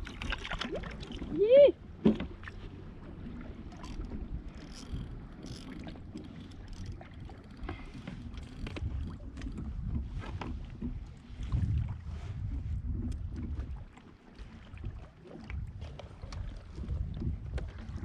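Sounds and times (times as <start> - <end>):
wind rumbling on microphone: 0.0 - 18.0
small knocks and clicks: 4.0 - 9.6.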